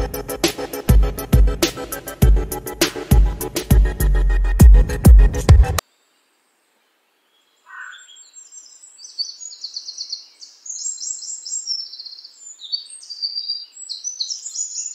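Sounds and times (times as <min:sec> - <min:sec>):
birds chirping and trilling: 0:05.9 - 0:14.9.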